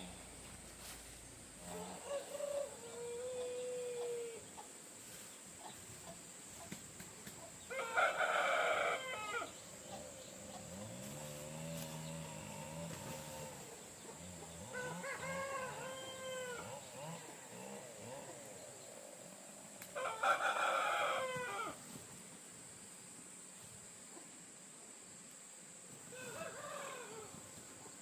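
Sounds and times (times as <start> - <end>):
rooster crowing: 1.7 - 4.5, 7.7 - 9.6, 14.6 - 18.2, 19.9 - 21.8, 26.1 - 27.4
rooster drawn-out call: 7.7 - 9.6, 14.6 - 18.3, 20.0 - 21.8, 26.1 - 27.4.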